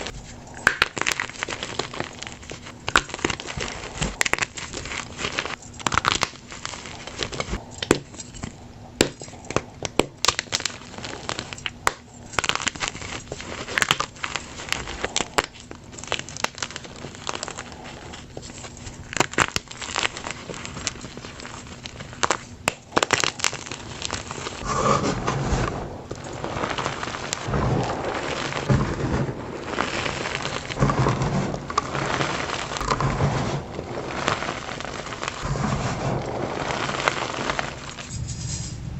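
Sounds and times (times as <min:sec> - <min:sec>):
chalk crunching by hand: 0:12.4 - 0:38.7.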